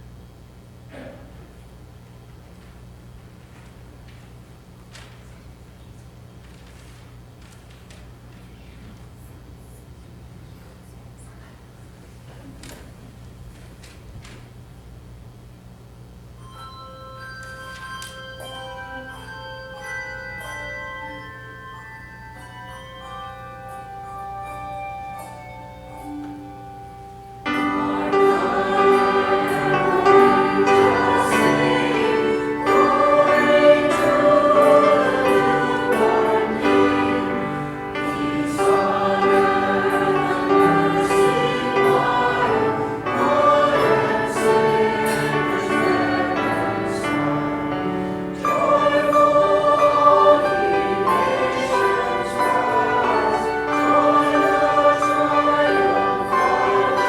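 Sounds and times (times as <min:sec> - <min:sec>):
church choir singing: 0:22.8 - 0:57.0.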